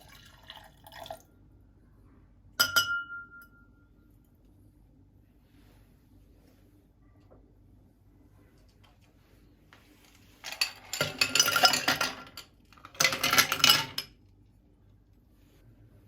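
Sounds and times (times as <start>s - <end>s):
tableware clinking: 2.6s - 3.7s, 10.4s - 14.1s.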